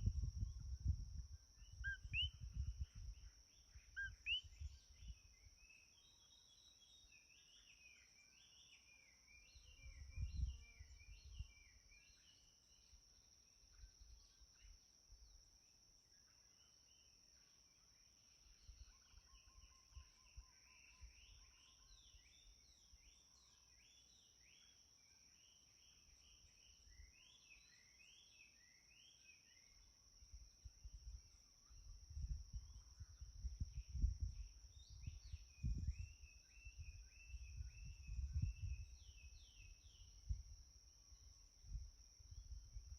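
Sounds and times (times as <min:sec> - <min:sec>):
small birds chirping: 0:01.6 - 0:15.3.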